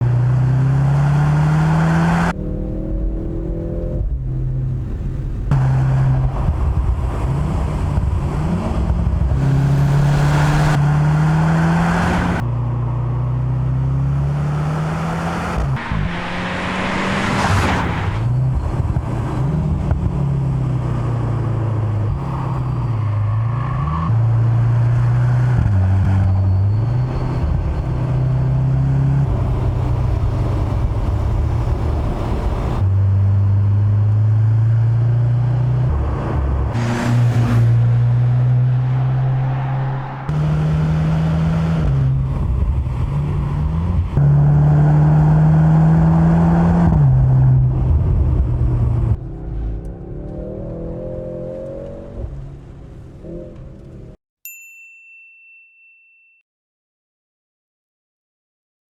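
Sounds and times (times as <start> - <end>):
car engine revving: 0.0 - 54.1
brief rushing burst: 15.8 - 18.3, 36.8 - 41.4.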